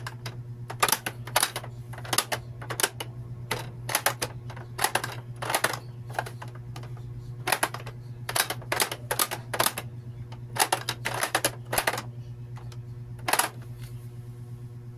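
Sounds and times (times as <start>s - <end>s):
plastic toy clicking and clacking: 0.0s - 13.6s
steady low hum: 0.0s - 14.9s.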